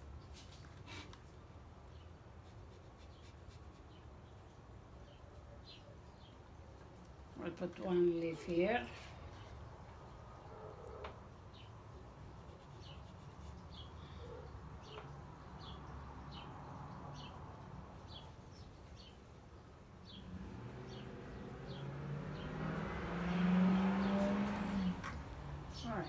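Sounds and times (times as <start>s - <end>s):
low engine hum: 20.0s - 26.0s.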